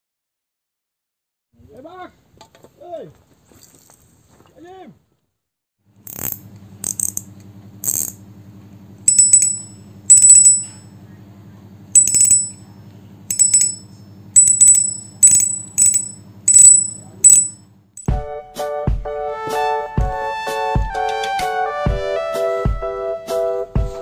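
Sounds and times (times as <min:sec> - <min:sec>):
low steady hum: 0:06.1 - 0:17.6
small bell jingling: 0:09.1 - 0:10.8, 0:12.0 - 0:12.6, 0:13.3 - 0:18.1
music: 0:18.1 - 0:24.0.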